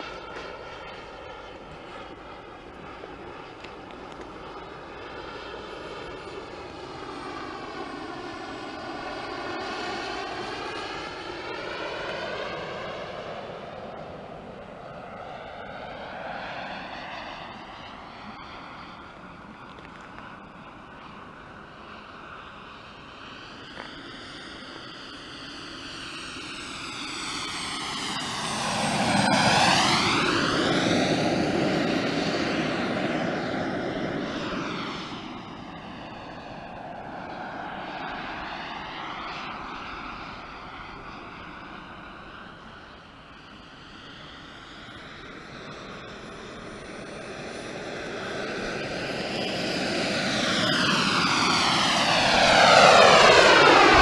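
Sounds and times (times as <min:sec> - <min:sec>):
model jet engine flying by: 0:00.0 - 0:54.0
whoosh of jet passing: 0:49.9 - 0:54.0.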